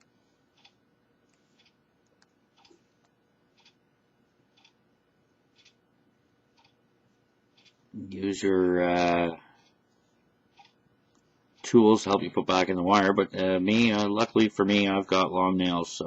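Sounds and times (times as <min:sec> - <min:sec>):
soft clicks: 0:00.0 - 0:03.8.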